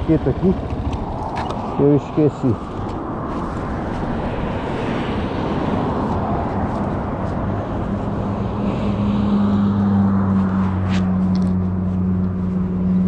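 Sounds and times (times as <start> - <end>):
motorcycle engine running: 0.0 - 2.0
wind noise on microphone: 0.9 - 12.8.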